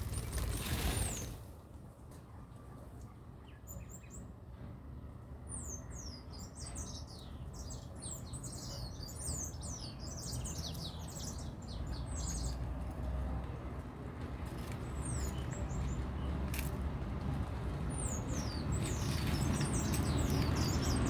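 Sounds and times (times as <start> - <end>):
small birds chirping in flock: 5.5 - 12.8, 14.6 - 16.5, 17.7 - 21.0.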